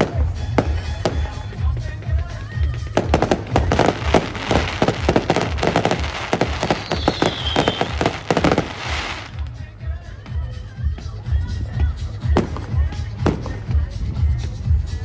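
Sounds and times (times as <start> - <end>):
fireworks crackling: 0.0 - 9.6, 12.2 - 14.4
falling firework whistle: 3.0 - 9.4.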